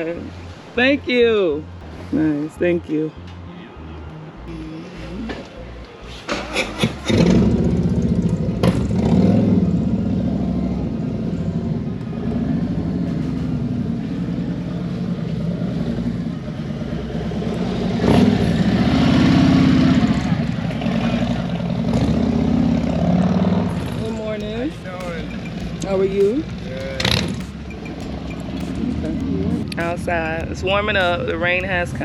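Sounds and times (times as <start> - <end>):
motorcycle engine idling: 22.2 - 32.0
starter clicks: 23.8 - 32.0.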